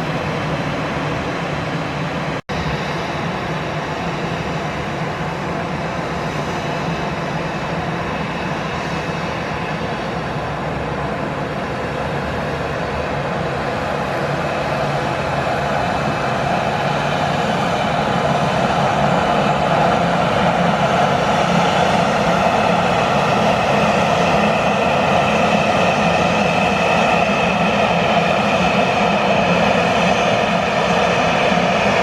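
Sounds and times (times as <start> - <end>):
jet engines running: 0.0 - 32.0.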